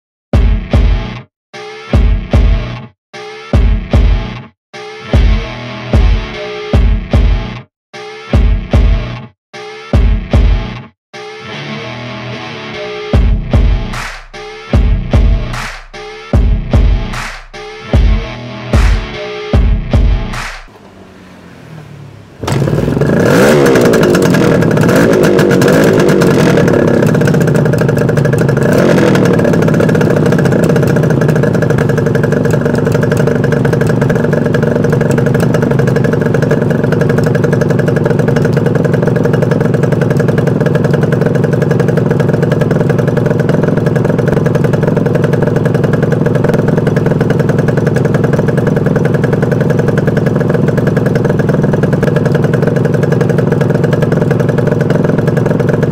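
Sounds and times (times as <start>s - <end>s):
two-stroke motorcycle engine revving: 17.8s - 55.9s
two-stroke engine idling: 20.7s - 55.9s.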